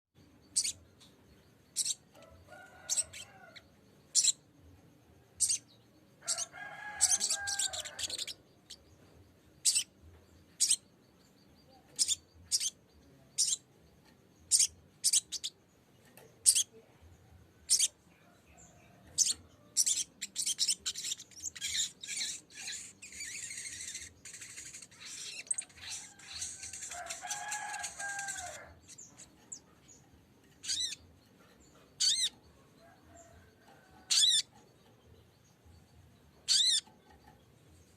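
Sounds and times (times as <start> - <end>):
bird chipping and chattering: 0.4 - 0.9, 1.6 - 4.4, 5.4 - 8.8, 9.6 - 10.9, 11.7 - 13.7, 14.4 - 15.6, 16.2 - 16.8, 17.6 - 18.0, 18.6 - 31.2, 31.9 - 33.3, 34.0 - 34.9, 36.4 - 37.9.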